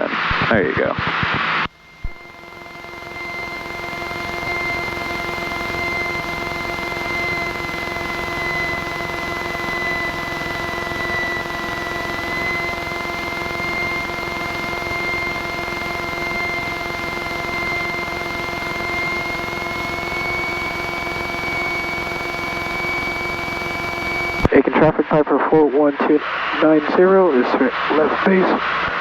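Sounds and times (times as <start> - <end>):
high whine: 0.0 - 29.0
light aircraft engine drone: 1.8 - 29.0.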